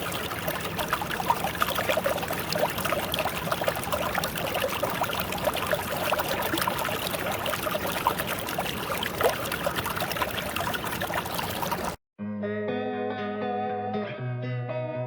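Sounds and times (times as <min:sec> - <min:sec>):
small bubbling plinks: 0:00.0 - 0:12.0
stream water pouring over rocks: 0:00.0 - 0:12.0.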